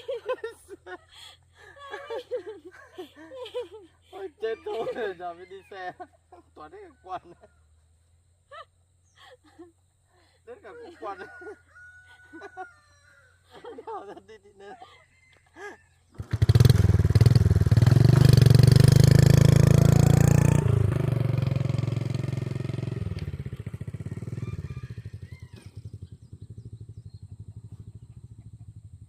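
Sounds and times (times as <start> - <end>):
motorbike engine revving: 16.1 - 29.0.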